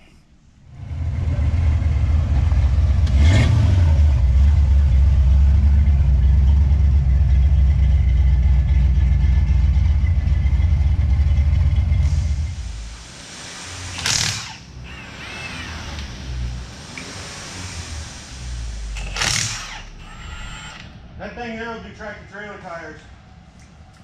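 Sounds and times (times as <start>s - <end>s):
car engine deep exhaust note: 0.7s - 14.9s.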